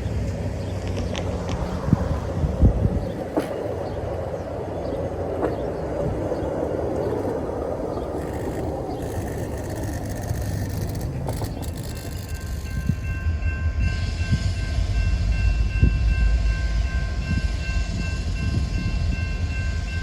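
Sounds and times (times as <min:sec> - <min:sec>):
diesel locomotive rumbling: 0:00.0 - 0:20.0
faint clicks: 0:07.0 - 0:12.8.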